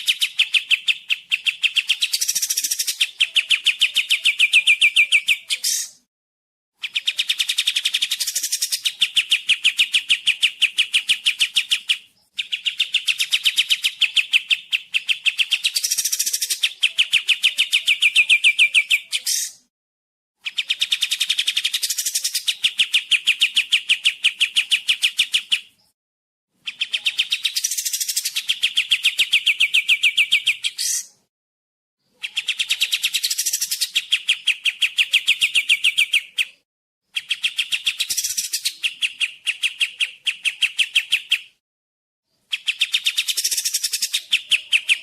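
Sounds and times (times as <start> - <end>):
songbird trilling: 0.0 - 6.0, 6.8 - 19.6, 26.6 - 31.2, 37.2 - 41.5, 42.4 - 45.0.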